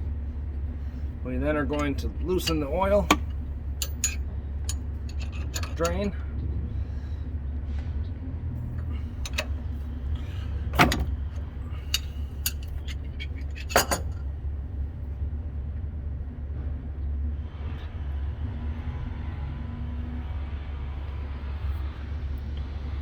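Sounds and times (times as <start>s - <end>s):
steady low rumble: 0.0s - 23.0s
wrench clicking and clanking: 1.7s - 6.2s, 8.7s - 9.6s, 10.8s - 14.2s.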